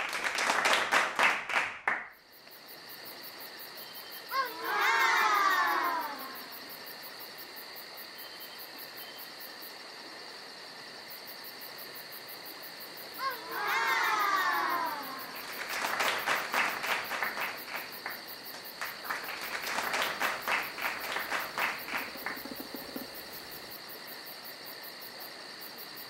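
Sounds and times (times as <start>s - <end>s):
clapping and cheering: 0.0s - 2.2s, 4.4s - 6.4s, 13.4s - 23.5s
voices going ooh: 4.3s - 6.7s, 13.2s - 16.0s, 19.0s - 23.6s.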